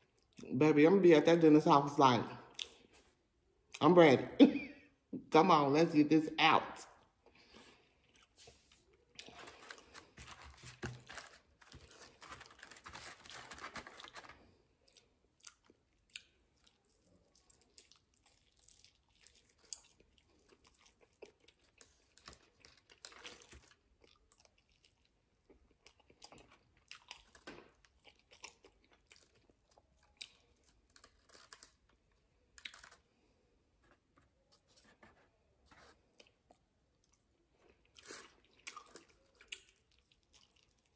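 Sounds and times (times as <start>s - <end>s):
crunchy chewing: 8.0s - 31.9s, 32.5s - 33.3s, 36.0s - 40.9s.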